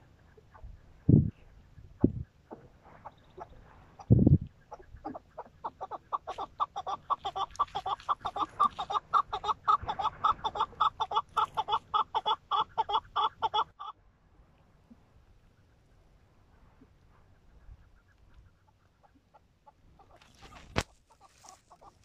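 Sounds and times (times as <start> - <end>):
partridge clucking call: 2.0 - 13.9, 17.8 - 22.0.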